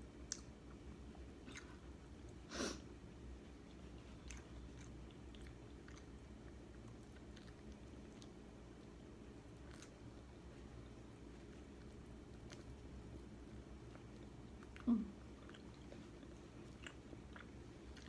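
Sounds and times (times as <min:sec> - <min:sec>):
mouth clicks and smacks: 0:00.2 - 0:00.6
person chewing: 0:00.2 - 0:02.4, 0:03.5 - 0:18.0.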